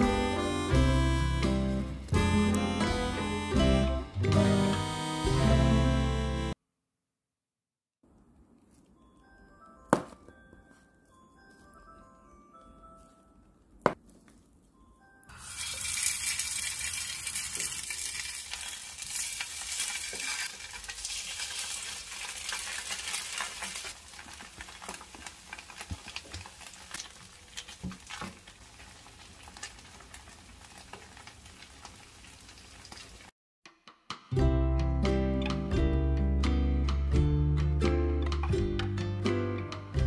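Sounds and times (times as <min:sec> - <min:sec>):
cleaver chopping onto board: 0:09.9 - 0:10.2
food sizzling in hot oil: 0:15.3 - 0:33.3.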